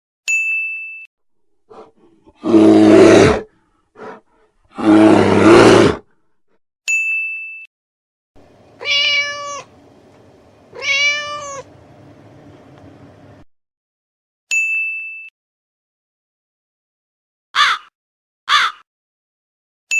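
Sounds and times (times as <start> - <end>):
ding chime: 0.3 - 1.1, 6.9 - 7.7, 14.5 - 15.3
large animal roaring: 1.7 - 6.0
house cat meowing: 8.7 - 9.8, 10.7 - 11.7.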